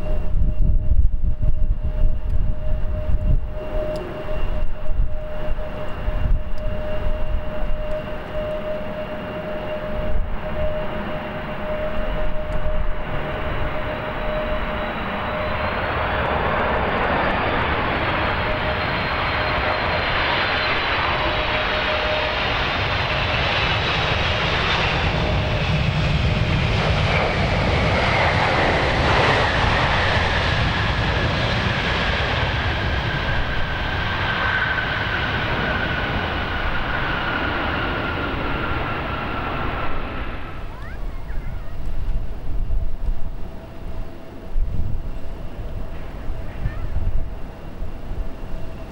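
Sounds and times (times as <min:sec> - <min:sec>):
wind rumble on microphone: 0:00.0 - 0:19.6, 0:38.2 - 0:48.9
jet airliner passing: 0:00.0 - 0:48.9.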